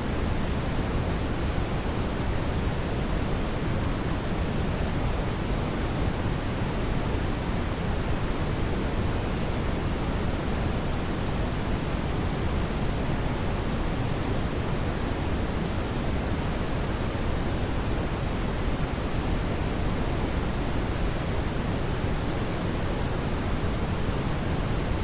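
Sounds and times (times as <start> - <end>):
brown noise hiss: 0.0 - 25.0.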